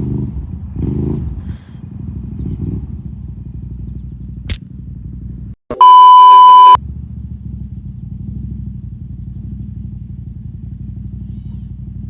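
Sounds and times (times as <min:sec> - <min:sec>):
atv engine rumbling: 0:00.0 - 0:05.6, 0:06.8 - 0:12.0
censor bleep: 0:05.7 - 0:06.8.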